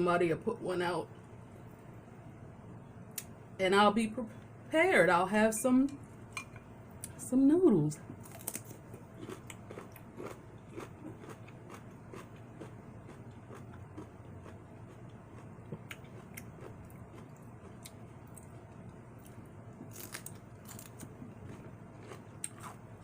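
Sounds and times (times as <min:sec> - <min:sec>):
chewing and crunching: 0:08.1 - 0:23.0.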